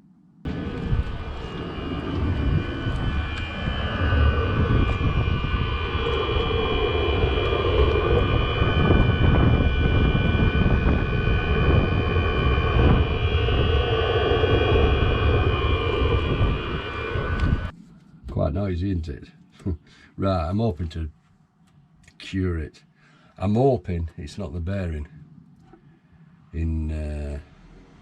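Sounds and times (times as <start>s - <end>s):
diesel air heater running: 0.5s - 17.7s.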